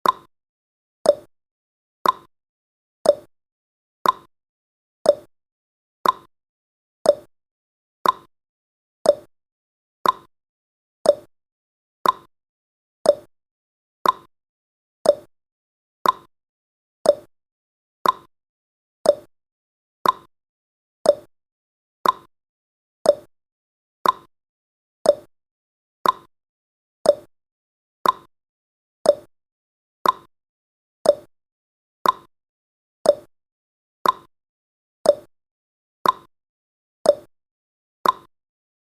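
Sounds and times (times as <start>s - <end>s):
countdown timer ticking: 1.1s - 1.3s, 5.1s - 5.3s, 7.1s - 7.3s, 9.1s - 9.3s, 11.1s - 11.3s, 13.1s - 13.3s, 15.1s - 15.3s, 17.1s - 17.3s, 18.0s - 18.3s, 19.1s - 19.3s, 21.1s - 21.3s, 23.1s - 23.3s, 25.1s - 25.3s, 26.0s - 26.3s, 27.1s - 27.3s, 28.0s - 28.3s, 29.1s - 29.3s, 30.0s - 30.3s, 31.1s - 31.3s, 32.0s - 32.3s, 33.1s - 33.3s, 34.0s - 34.3s, 35.1s - 35.3s, 36.0s - 36.3s, 37.1s - 37.3s, 38.0s - 38.3s.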